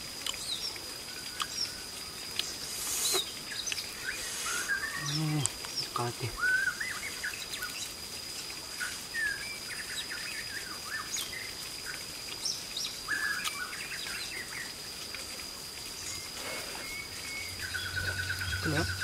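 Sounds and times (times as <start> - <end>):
birds chirping: 0.2 - 8.0, 15.9 - 19.0.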